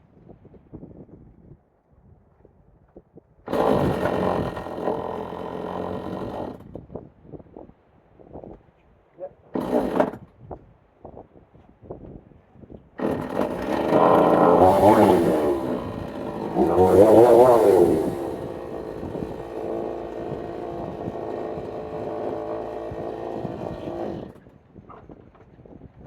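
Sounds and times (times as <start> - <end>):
two-stroke chainsaw revving: 3.5 - 6.6, 9.6 - 10.2, 13.0 - 24.4.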